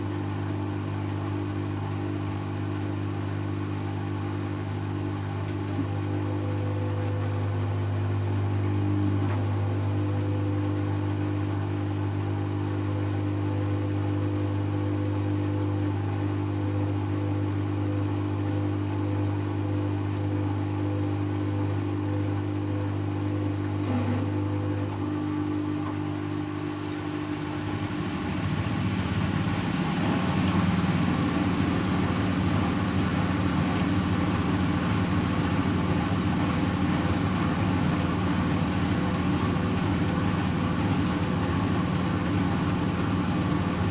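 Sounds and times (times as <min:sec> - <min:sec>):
washing machine spinning: 0:00.0 - 0:43.9.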